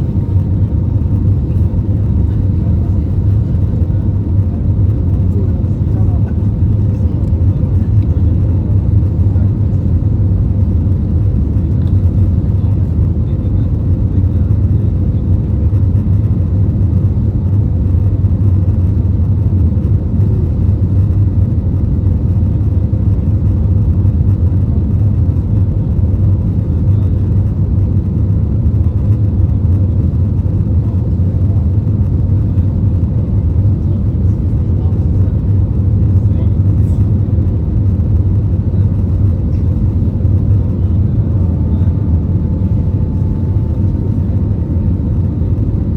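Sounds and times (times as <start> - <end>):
aircraft cabin engine rumble: 0.0 - 45.9
faint steady hum: 0.0 - 45.9.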